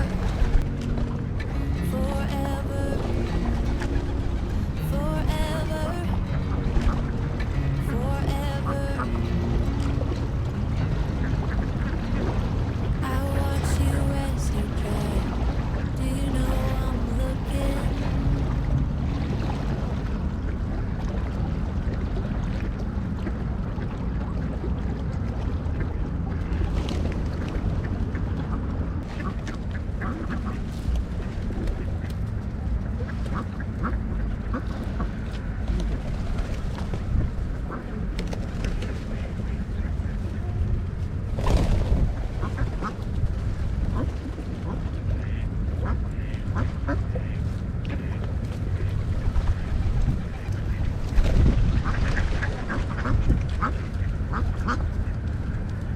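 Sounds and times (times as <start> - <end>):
lakeside outdoor ambience rumble: 0.0 - 55.9
ducks quacking: 42.4 - 43.0, 43.9 - 48.2, 51.7 - 55.1.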